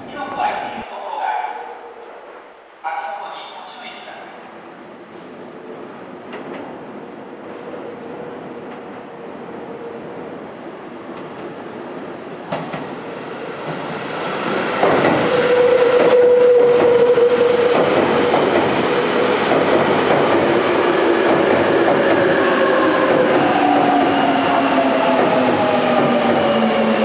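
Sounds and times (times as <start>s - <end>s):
train whine falling in pitch: 14.9s - 18.0s.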